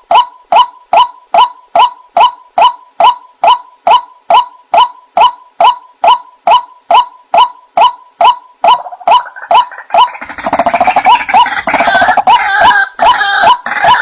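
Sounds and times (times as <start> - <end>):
waterhen calling: 7.8 - 14.0.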